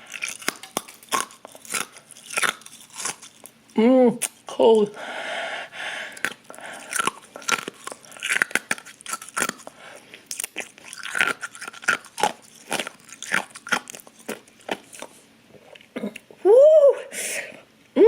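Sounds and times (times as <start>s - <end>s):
ice cube crunching between teeth: 0.0s - 3.6s, 6.1s - 15.2s.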